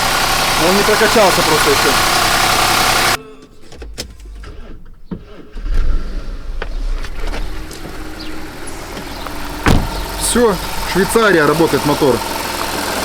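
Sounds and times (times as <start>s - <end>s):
car engine idling: 0.0s - 3.2s, 6.2s - 13.0s
fuel injectors ticking: 0.0s - 3.2s, 7.2s - 13.0s.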